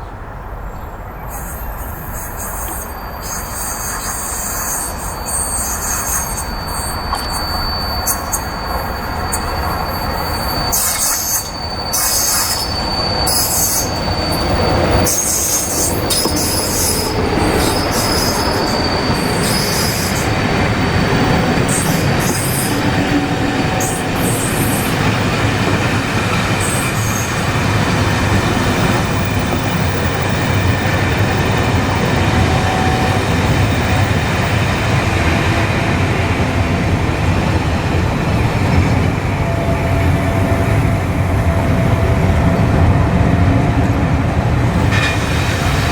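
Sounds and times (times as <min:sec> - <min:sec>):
train rail noise: 0:00.0 - 0:45.9
high-pitched wheel squealing: 0:01.2 - 0:37.0.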